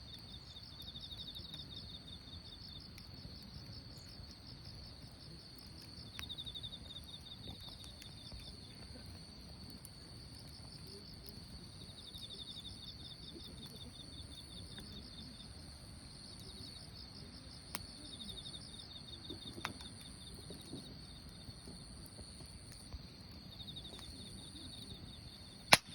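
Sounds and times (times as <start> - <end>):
campfire crackling and popping: 0.0 - 25.9
insects trilling: 0.1 - 25.9.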